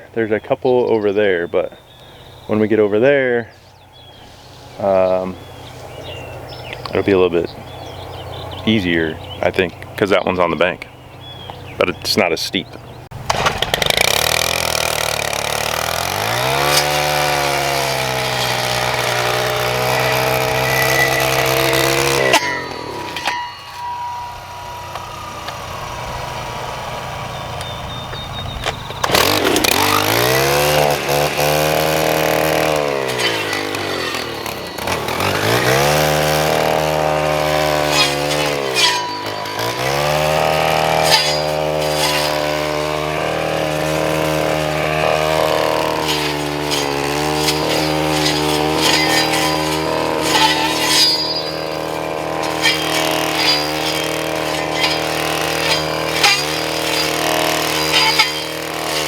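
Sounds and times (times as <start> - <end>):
string trimmer cutting brush: 13.2 - 59.0.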